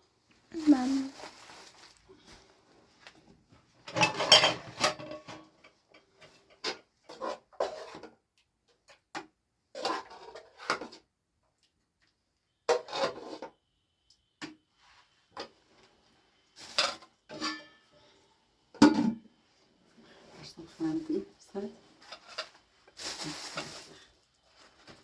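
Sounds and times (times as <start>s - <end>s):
hard objects clattering and scraping: 3.8s - 8.1s, 21.9s - 25.0s.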